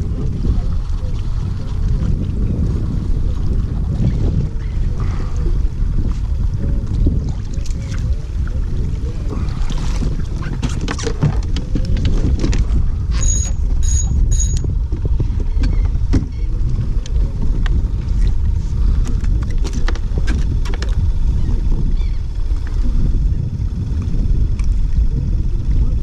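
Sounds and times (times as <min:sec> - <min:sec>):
wind buffeting the microphone: 0:00.0 - 0:26.0
short high-pitched sounds: 0:13.1 - 0:14.6.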